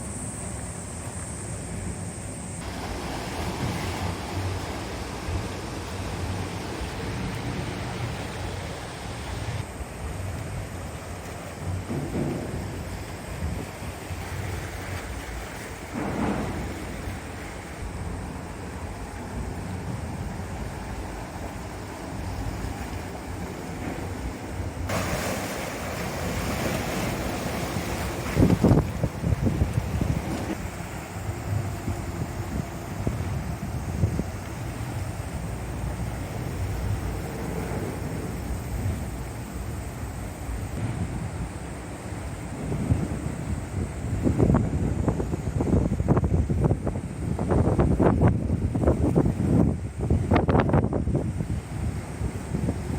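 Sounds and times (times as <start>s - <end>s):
train running at speed: 2.4s - 10.3s, 15.6s - 45.6s
rushing air noise: 11.7s - 52.9s.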